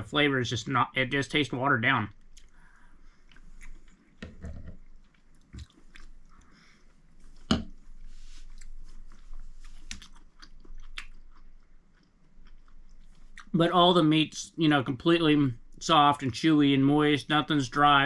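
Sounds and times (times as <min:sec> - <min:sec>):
person chewing food: 0:02.2 - 0:13.5.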